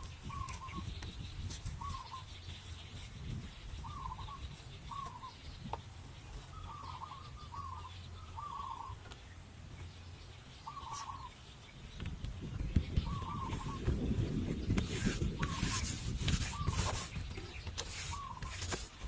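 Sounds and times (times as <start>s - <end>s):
bird calling: 0.0s - 19.0s.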